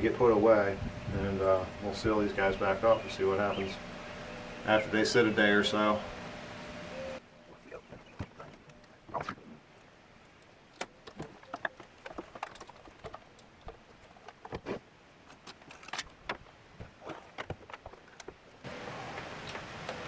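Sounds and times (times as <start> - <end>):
steady hiss: 0.0 - 8.0, 18.7 - 20.0
small hard gear rattling: 10.2 - 20.0.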